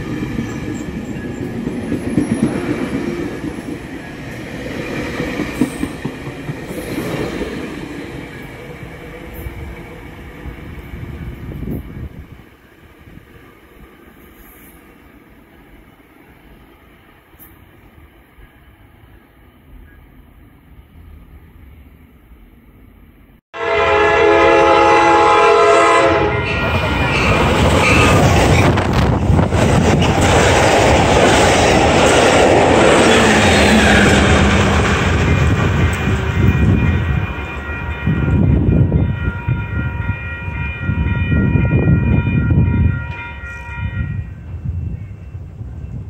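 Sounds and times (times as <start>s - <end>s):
train rumbling past: 0.0s - 46.0s
train horn chord: 23.6s - 26.7s, 35.6s - 44.4s.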